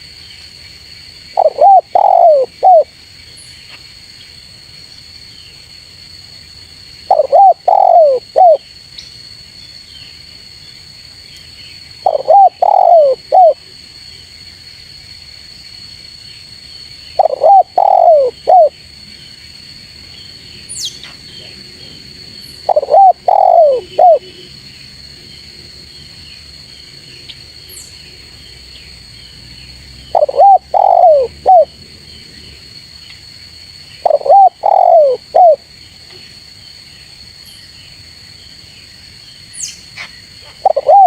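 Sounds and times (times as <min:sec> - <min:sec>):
dove cooing: 0:01.4 - 0:02.9, 0:07.1 - 0:08.6, 0:12.0 - 0:13.6, 0:17.2 - 0:18.7, 0:22.6 - 0:24.5, 0:30.1 - 0:31.7, 0:34.0 - 0:35.6, 0:40.5 - 0:41.0.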